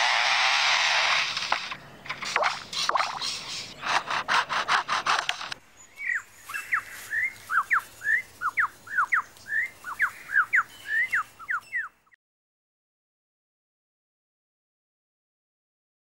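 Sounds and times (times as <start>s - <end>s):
lyrebird chainsaw mimicry: 0.0s - 12.2s
whistled bird notes: 5.8s - 12.2s.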